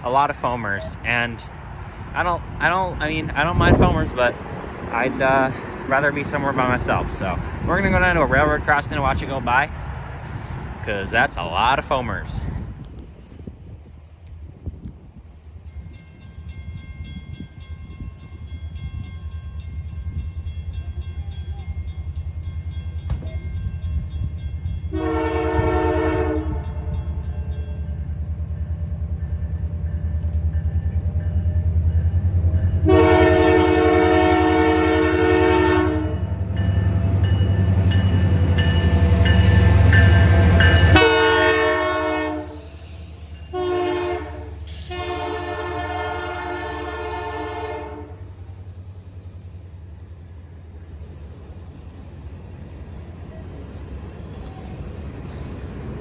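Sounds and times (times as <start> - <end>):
diesel locomotive engine rumble: 0.0 - 56.0
crossing bell ringing: 15.6 - 42.2, 44.8 - 47.5
train air horn blasts: 24.9 - 27.0, 32.7 - 36.4, 40.0 - 48.3.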